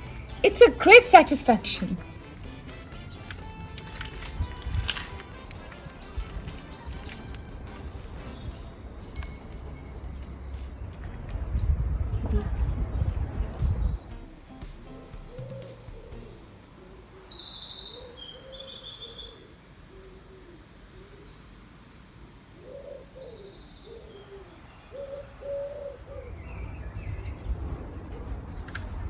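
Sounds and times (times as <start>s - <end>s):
songbirds chirping in trills: 0.0s - 10.0s, 14.6s - 27.6s
pigeon cooing: 22.6s - 26.4s.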